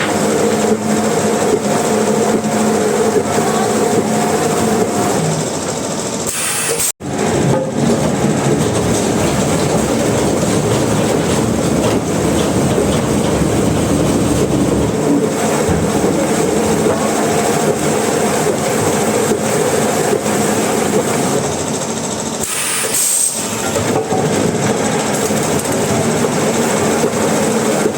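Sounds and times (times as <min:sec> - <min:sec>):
sawmill machinery running: 0:00.0 - 0:27.9.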